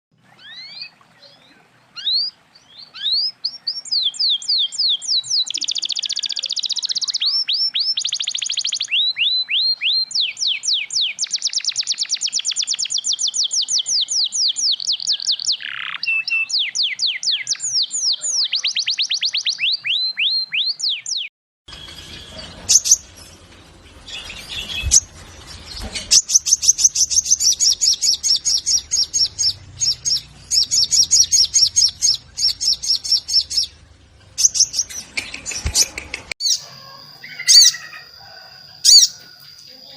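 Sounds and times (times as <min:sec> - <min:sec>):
bird singing high rapid notes: 0:00.1 - 0:36.6, 0:37.2 - 0:38.1
bird chattering: 0:02.9 - 0:21.3, 0:22.4 - 0:23.2, 0:26.1 - 0:38.1.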